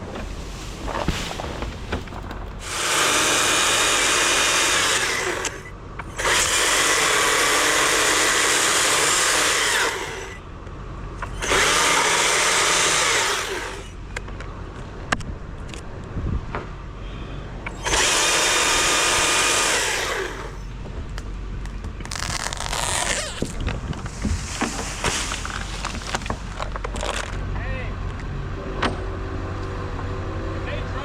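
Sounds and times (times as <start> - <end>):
chainsaw revving and idling: 2.6 - 10.4, 11.3 - 14.0, 17.8 - 20.6.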